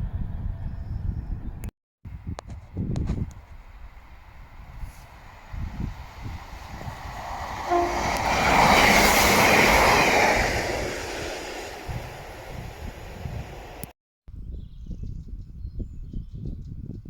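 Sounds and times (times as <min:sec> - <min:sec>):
wind rumble on microphone: 0:00.0 - 0:17.0
train rushing past on rails: 0:02.7 - 0:13.9.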